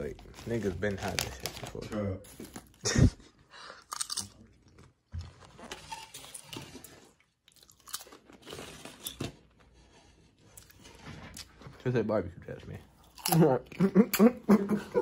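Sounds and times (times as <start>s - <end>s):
person crunching chips: 3.8s - 4.9s, 7.5s - 9.0s.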